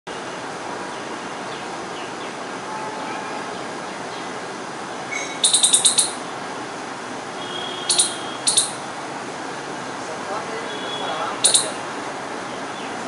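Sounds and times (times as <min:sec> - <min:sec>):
squirrel chirping: 0:05.1 - 0:06.3, 0:07.5 - 0:08.9, 0:10.7 - 0:11.8.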